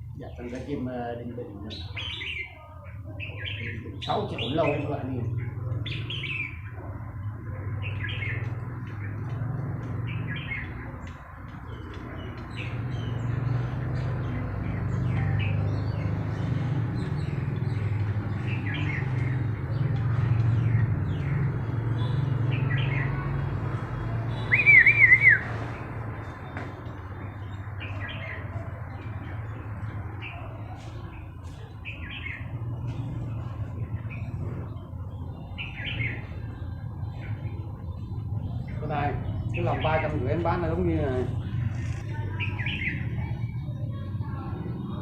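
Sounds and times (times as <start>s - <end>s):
small bird chirping: 1.8s - 23.2s.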